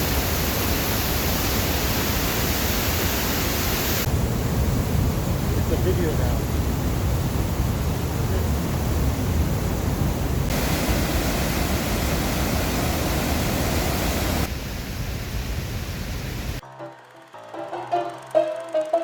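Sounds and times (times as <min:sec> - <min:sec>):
rushing white water roar: 0:00.0 - 0:16.6
music: 0:16.6 - 0:19.0.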